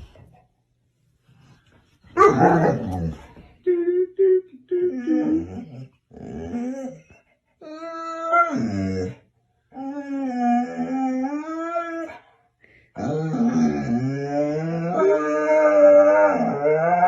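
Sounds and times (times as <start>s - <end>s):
dog howling: 2.2s - 3.1s, 7.6s - 9.2s, 9.8s - 12.2s, 13.0s - 17.0s.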